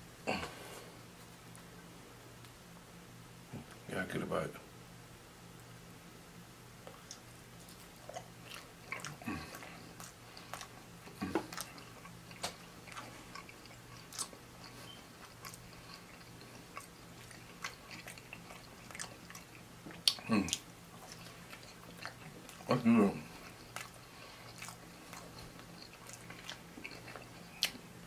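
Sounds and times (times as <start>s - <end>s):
person chewing food: 6.8s - 28.0s.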